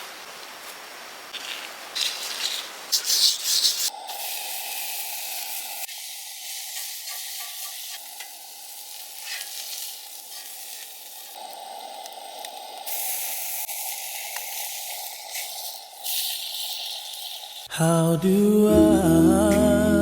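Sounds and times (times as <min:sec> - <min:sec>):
scraping or stirring in pan: 0:01.3 - 0:11.4, 0:12.9 - 0:17.6
food sizzling in frying pan: 0:01.3 - 0:17.7.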